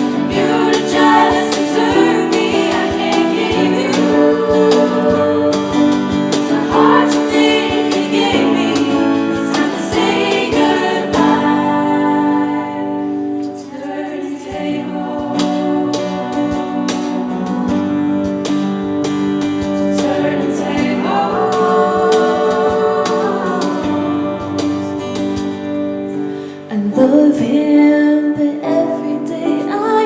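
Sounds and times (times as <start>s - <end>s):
choir singing sustained chords: 0.0s - 26.2s
instrumental accompaniment: 0.0s - 27.2s.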